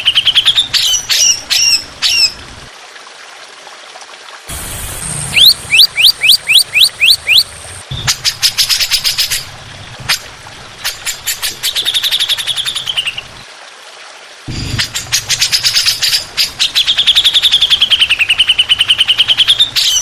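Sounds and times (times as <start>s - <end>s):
songbird whistles and trills: 5.1s - 9.5s.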